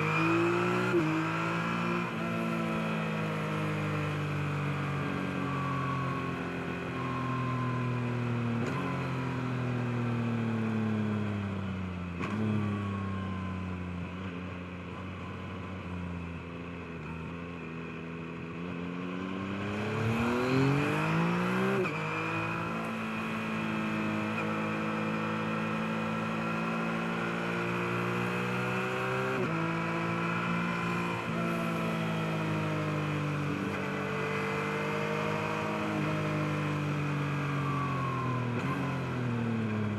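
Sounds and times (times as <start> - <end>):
motorcycle engine revving: 18.6 - 37.6.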